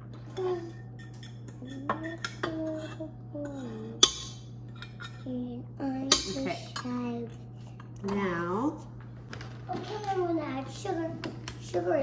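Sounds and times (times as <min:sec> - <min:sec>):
utensil clinking on metal bowl: 0:00.3 - 0:05.3, 0:06.0 - 0:07.0.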